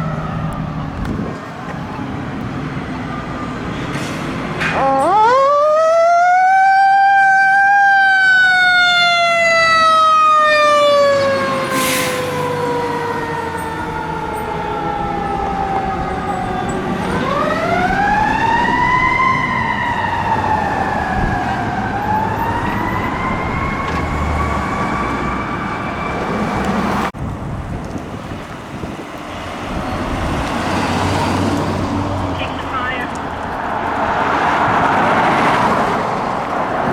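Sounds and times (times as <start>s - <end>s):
fire truck siren wailing: 0.0s - 27.1s, 29.6s - 36.9s
low vehicle rumble: 12.6s - 36.9s.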